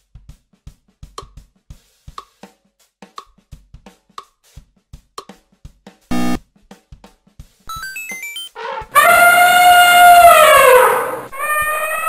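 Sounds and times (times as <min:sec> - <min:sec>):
quiet drum-kit beat: 0:00.0 - 0:07.6.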